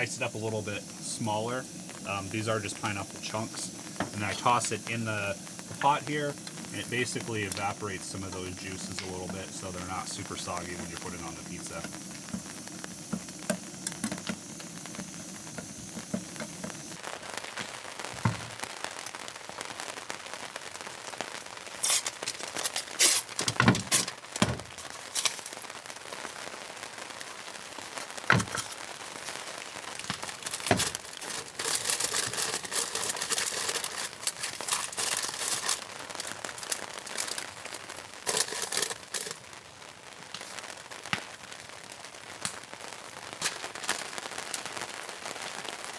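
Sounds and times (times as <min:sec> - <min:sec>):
crinkling and rustling: 0:00.0 - 0:18.6, 0:21.8 - 0:25.7, 0:27.8 - 0:39.6, 0:43.4 - 0:44.7
pot sizzling: 0:00.0 - 0:45.9
utensils clattering: 0:05.7 - 0:16.9, 0:21.8 - 0:24.2, 0:30.3 - 0:35.9, 0:38.2 - 0:39.4.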